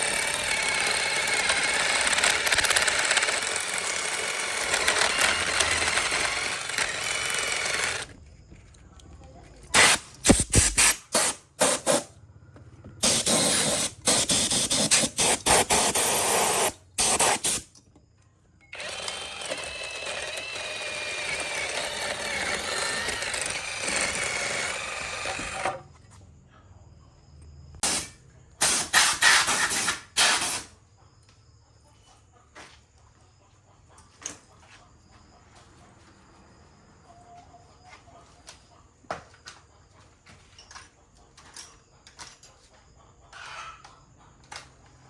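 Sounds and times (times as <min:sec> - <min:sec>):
small power tool whining: 0:00.0 - 0:08.2, 0:13.0 - 0:17.6, 0:18.6 - 0:25.8
short hissing bursts: 0:09.8 - 0:12.1, 0:13.0 - 0:17.7, 0:27.8 - 0:30.7.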